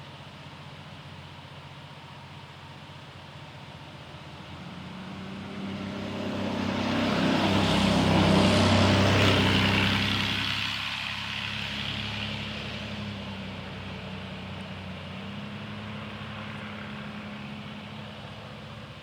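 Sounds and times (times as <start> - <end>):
vehicle driving past: 4.3 - 19.0.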